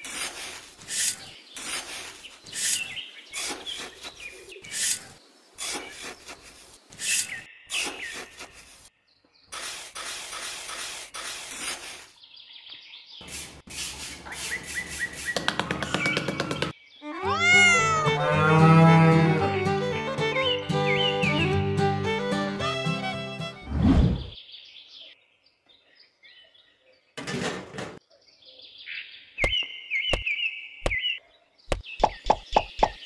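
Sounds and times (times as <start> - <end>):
trowel scraping damp sand: 0.0 - 8.9, 9.5 - 12.2, 13.2 - 15.5
quick taps: 15.4 - 16.7.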